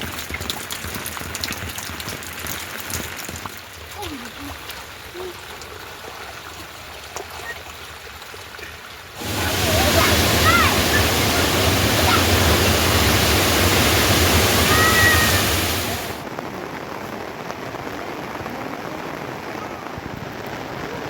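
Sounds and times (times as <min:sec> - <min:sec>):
loud rush of water: 0:03.8 - 0:21.0
steady hiss: 0:09.2 - 0:16.2.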